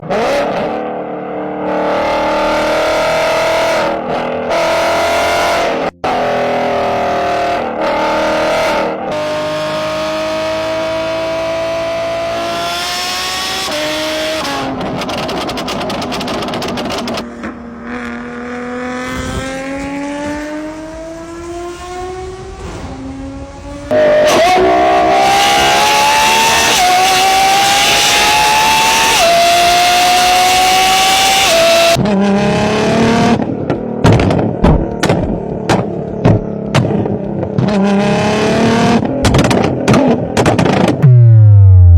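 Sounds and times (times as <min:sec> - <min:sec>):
racing car engines revving: 0:00.0 - 0:41.9.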